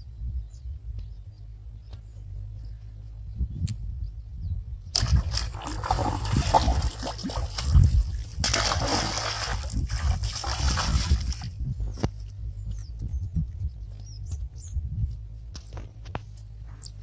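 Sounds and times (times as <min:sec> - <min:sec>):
water splashing: 0:05.0 - 0:11.6.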